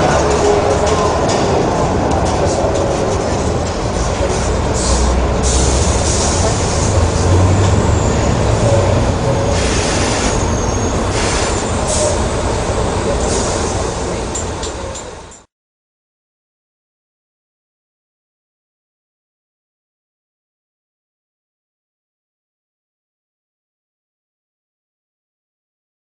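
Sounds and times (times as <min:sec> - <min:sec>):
bus diesel engine droning: 0:00.0 - 0:15.5.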